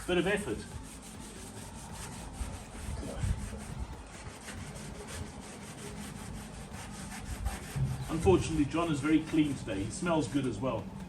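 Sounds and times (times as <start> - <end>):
rag scrubbing on steel: 0.0 - 10.6.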